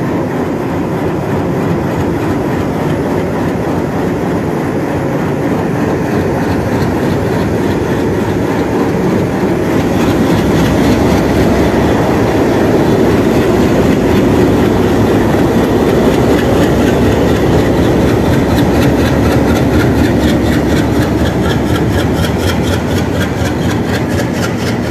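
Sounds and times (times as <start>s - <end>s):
locomotive engine rumbling: 0.0s - 24.9s
rapid even clatter: 0.0s - 24.9s
train rolling: 0.0s - 24.9s.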